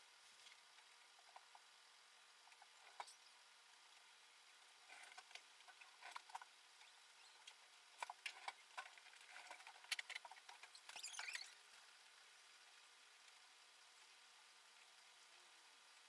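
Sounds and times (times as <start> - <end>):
small parts clicking and tapping: 4.9 - 11.5.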